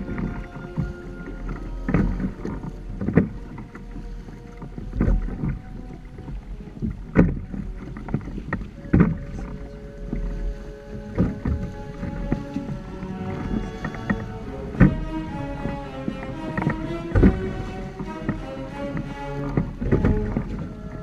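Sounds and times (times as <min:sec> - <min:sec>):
water splashing against hulls: 0:00.0 - 0:21.0
low rumble: 0:11.2 - 0:21.0.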